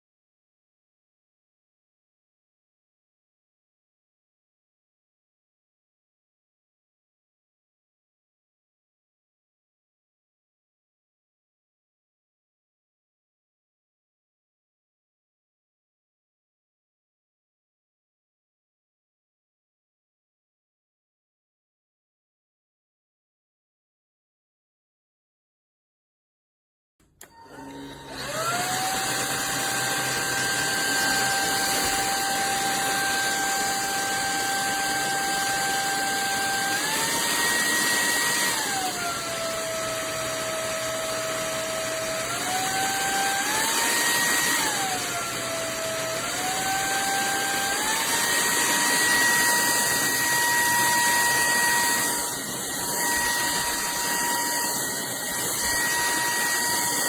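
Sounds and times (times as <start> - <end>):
vacuum motor whining: 27.1 - 57.0.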